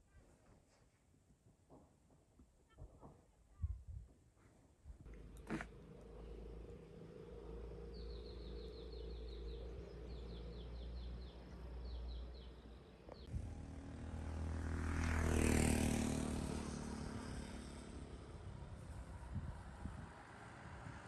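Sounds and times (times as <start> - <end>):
vehicle passing: 5.1 - 21.0
bird chirping: 7.9 - 13.3.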